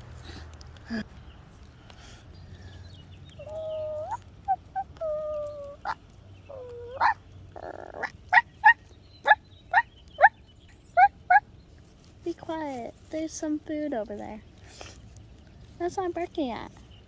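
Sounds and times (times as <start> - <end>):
person whimpering like puppy: 3.4 - 8.1.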